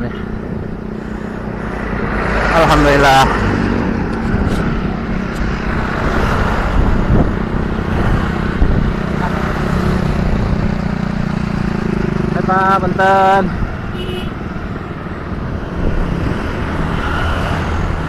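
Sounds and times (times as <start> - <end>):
traffic engine hum: 0.0 - 18.0
wind buffeting microphone: 3.2 - 12.4, 13.3 - 18.0.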